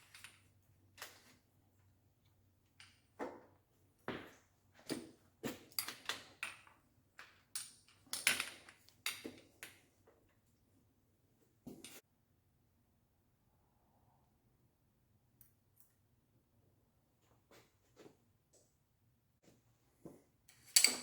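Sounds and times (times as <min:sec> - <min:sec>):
clicks and knocks of bicycle parts: 0:00.0 - 0:01.4, 0:02.7 - 0:10.4, 0:20.5 - 0:21.0.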